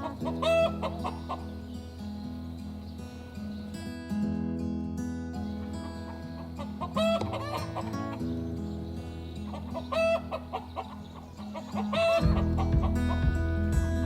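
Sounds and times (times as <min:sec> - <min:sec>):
chickens clucking: 0:00.0 - 0:02.9, 0:05.3 - 0:13.6
background music: 0:09.2 - 0:14.0.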